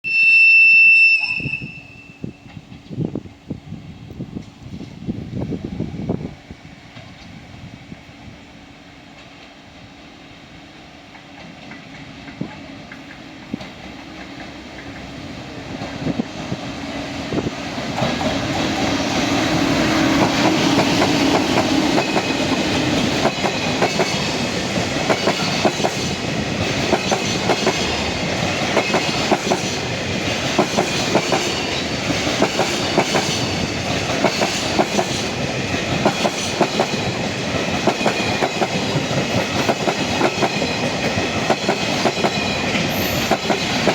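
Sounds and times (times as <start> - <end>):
electric locomotive passing: 0.1 - 43.9
wheels clacking over rail joints: 17.6 - 43.9.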